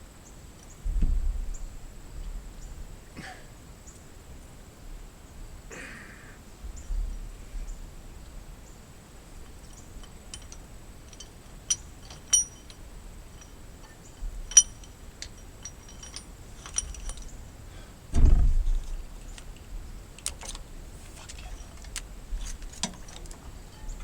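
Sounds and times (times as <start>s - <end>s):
low steady rumble: 6.6s - 24.0s
light metallic clinks: 9.2s - 24.0s.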